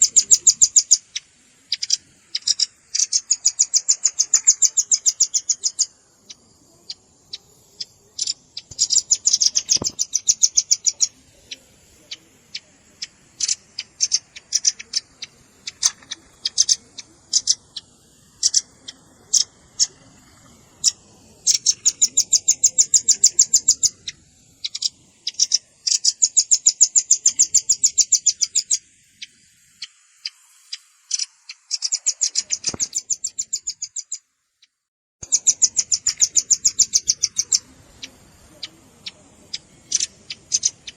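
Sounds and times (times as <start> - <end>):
bird high-pitched trills: 0.0 - 34.2, 35.2 - 40.9
bird sharp chips: 8.2 - 11.1, 31.1 - 34.1.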